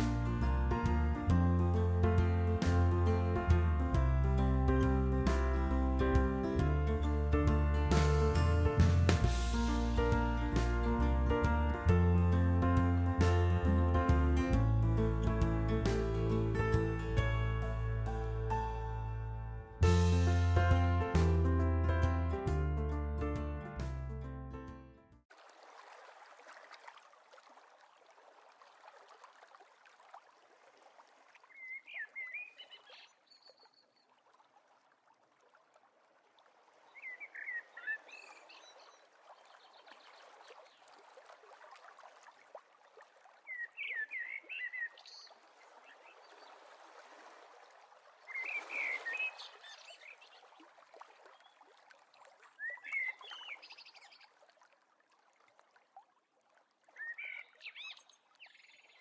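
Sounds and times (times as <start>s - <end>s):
songbird twittering: 31.5s - 33.9s, 37.0s - 39.0s, 43.5s - 46.4s, 48.3s - 50.5s, 52.6s - 54.2s, 57.0s - 59.0s.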